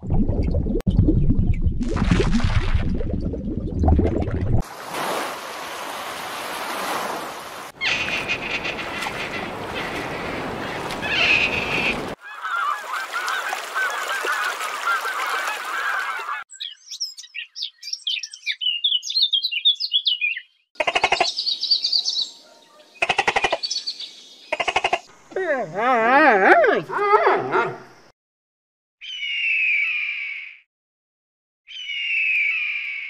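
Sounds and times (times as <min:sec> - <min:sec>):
small birds chirping: 0:07.8 - 0:12.5, 0:16.5 - 0:25.0
geese honking: 0:07.8 - 0:16.4
rapid pulsed bird calls: 0:07.8 - 0:25.1, 0:29.0 - 0:30.6, 0:31.7 - 0:33.0.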